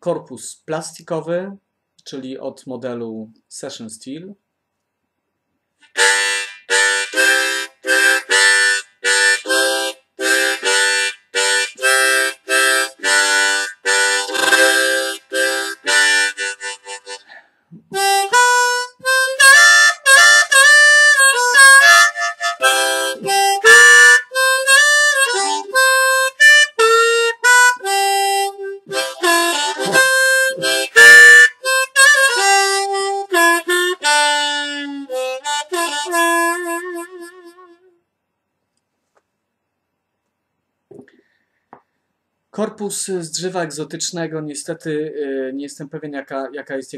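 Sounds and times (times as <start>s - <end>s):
harmonica playing: 5.8s - 38.0s.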